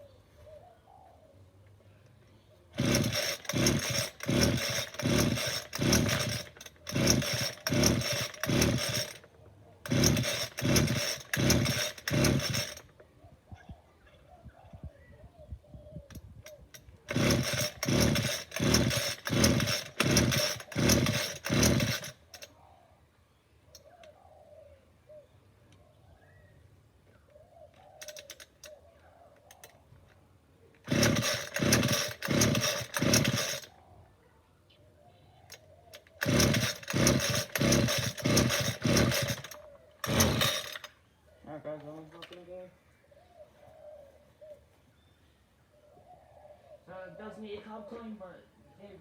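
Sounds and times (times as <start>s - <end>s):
recoil cord pulls whirring: 2.8s - 13.0s, 16.1s - 22.5s, 30.8s - 33.7s, 35.5s - 41.0s.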